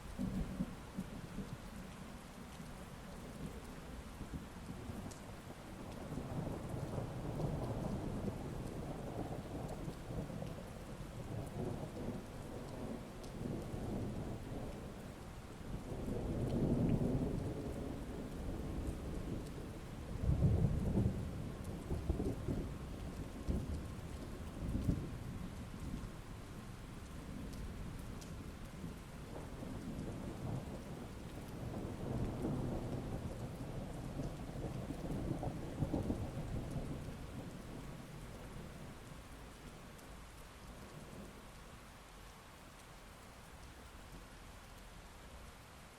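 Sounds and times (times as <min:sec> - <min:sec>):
heavy rain falling: 0:00.0 - 0:45.9
thunder rumbling: 0:15.7 - 0:26.0, 0:27.2 - 0:39.4.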